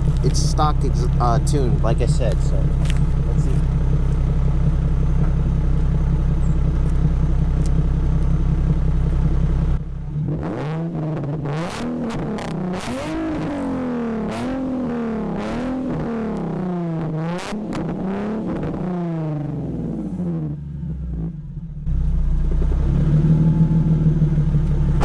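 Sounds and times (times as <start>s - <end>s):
car engine idling: 0.0s - 10.4s, 18.8s - 25.0s
car engine revving: 0.0s - 25.0s.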